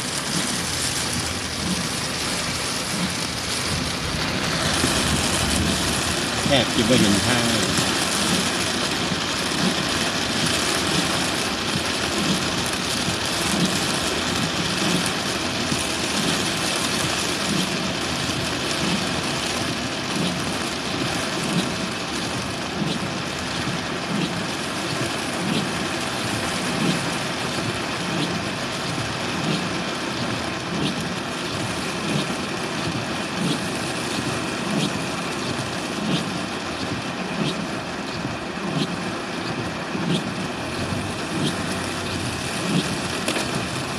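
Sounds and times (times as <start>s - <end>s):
car engine running: 0.0s - 43.9s
heavy rain on a car: 0.0s - 43.9s
soft regular beat: 31.6s - 41.7s.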